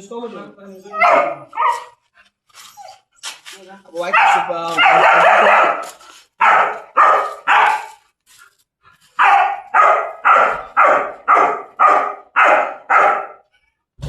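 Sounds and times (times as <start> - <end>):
dog barking loudly: 0.9 - 2.0, 4.0 - 8.1, 9.2 - 13.5.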